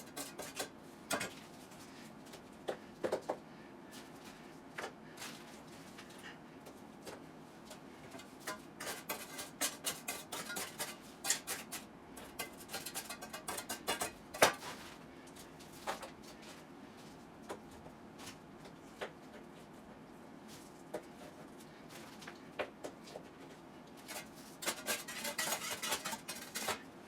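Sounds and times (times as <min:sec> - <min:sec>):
hand tools scraping wet concrete: 0:08.5 - 0:11.8, 0:24.1 - 0:26.9.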